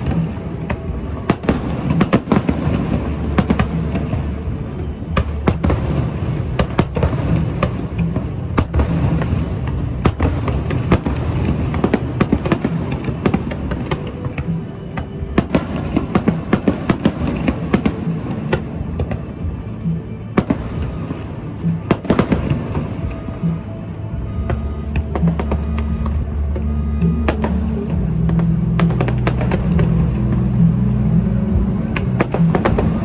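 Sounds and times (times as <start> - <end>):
fireworks cracking and popping: 0.0 - 23.7
background music with low beat: 0.0 - 33.0.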